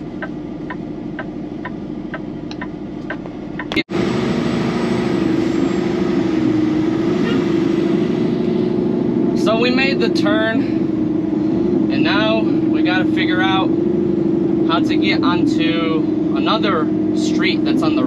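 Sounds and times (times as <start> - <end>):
truck driving with road noise: 0.0 - 18.0
truck engine idling: 0.0 - 18.0
regular ticking: 0.2 - 3.9.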